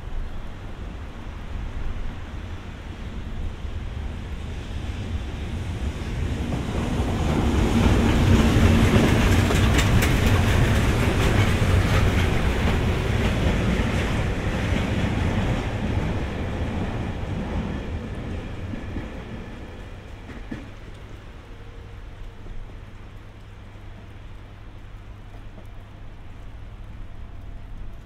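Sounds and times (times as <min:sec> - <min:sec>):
freight train rumble: 0:00.0 - 0:28.0
wheels clacking over rail joints: 0:06.3 - 0:21.3.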